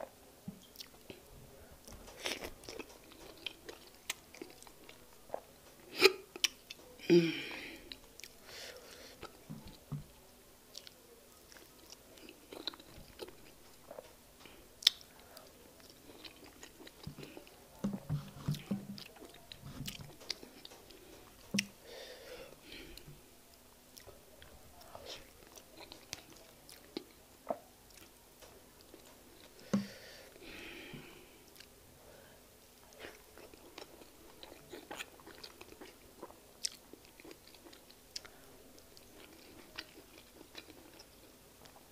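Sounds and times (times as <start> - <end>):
wet chewing mouth sounds: 15.8 - 21.8, 32.9 - 41.9.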